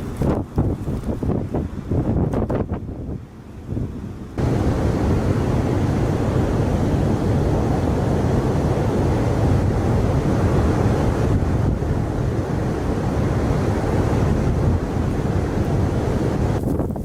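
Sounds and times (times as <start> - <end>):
strong wind buffeting microphone: 0.0 - 17.0
surf: 3.7 - 17.0.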